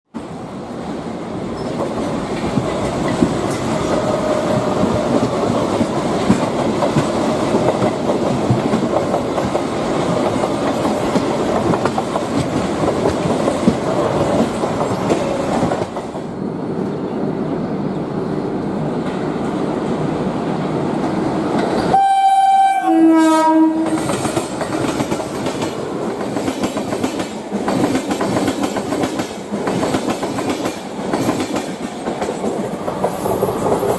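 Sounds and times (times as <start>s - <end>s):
train wheels clattering: 1.6s - 16.3s, 23.8s - 33.9s
two-note train horn: 21.9s - 24.0s.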